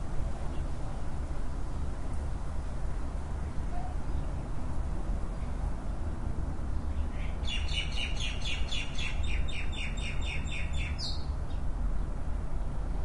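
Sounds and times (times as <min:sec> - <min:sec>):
songbird singing repeated notes: 0:06.9 - 0:11.7.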